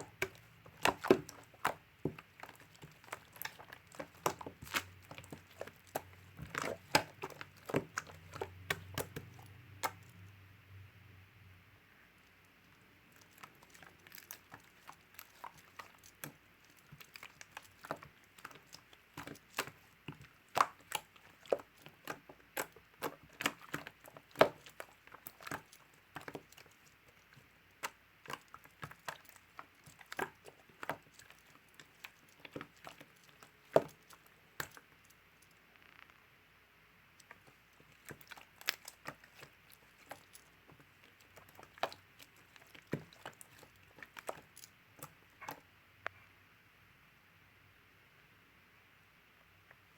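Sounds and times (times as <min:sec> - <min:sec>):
slime clicking and popping: 0:00.0 - 0:10.1, 0:13.2 - 0:34.8.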